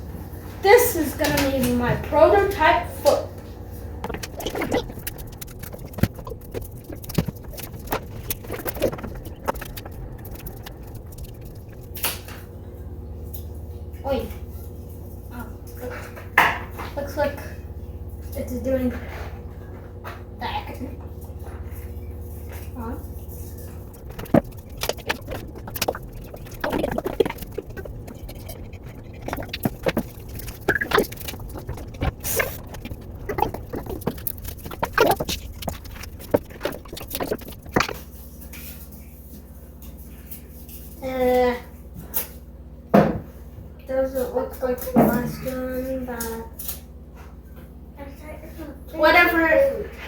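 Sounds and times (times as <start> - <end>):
steady low hum: 0.0 - 50.0
crinkling: 3.8 - 12.3, 22.2 - 38.9.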